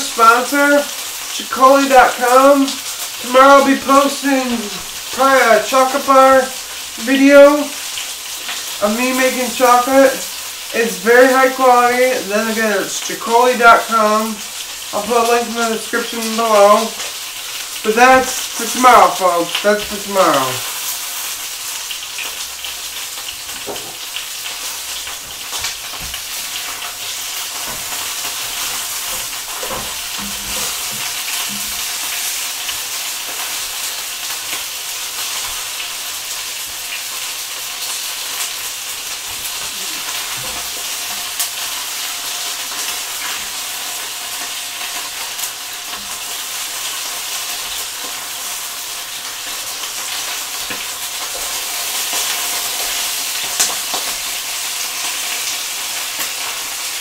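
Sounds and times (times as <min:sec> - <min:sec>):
chicken sizzling in a pan: 0:00.0 - 0:57.0
tongs turning meat: 0:23.1 - 0:35.9.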